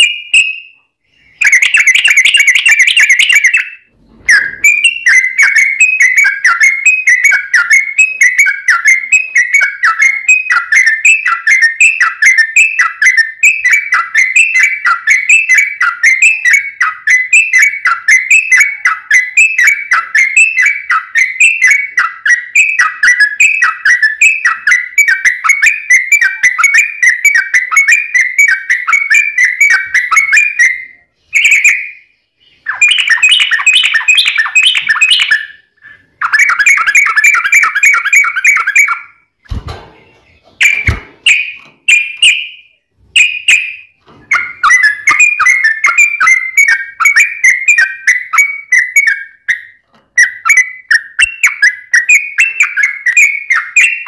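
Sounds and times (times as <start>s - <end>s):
bird chattering song: 0.0s - 54.0s
brief thumps: 39.4s - 41.9s.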